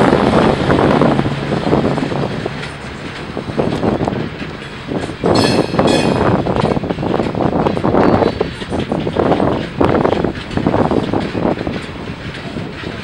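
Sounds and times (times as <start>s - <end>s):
freight train cars rolling: 0.0s - 13.0s.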